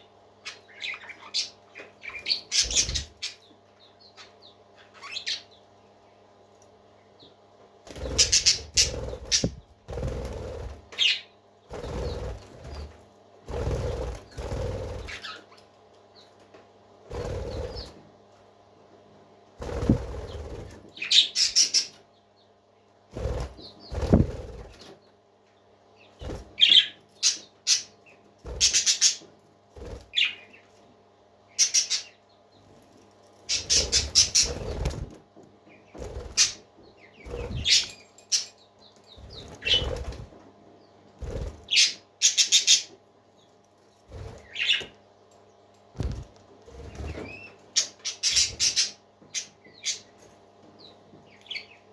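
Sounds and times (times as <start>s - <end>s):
faint steady hum: 0.0s - 51.9s
parakeets chirping: 0.4s - 5.6s, 7.9s - 12.9s, 13.5s - 15.6s, 17.1s - 18.0s, 19.6s - 22.0s, 26.0s - 29.3s, 30.1s - 30.6s, 31.5s - 32.2s, 33.5s - 35.1s, 35.8s - 40.2s, 40.8s - 43.0s, 44.2s - 44.9s, 46.0s - 50.1s
wings fluttering: 2.0s - 3.3s, 7.8s - 15.6s, 17.0s - 18.0s, 19.6s - 22.0s, 23.1s - 25.0s, 26.1s - 27.8s, 28.4s - 30.8s, 32.7s - 40.5s, 41.1s - 42.9s, 43.7s - 45.0s, 45.8s - 49.0s.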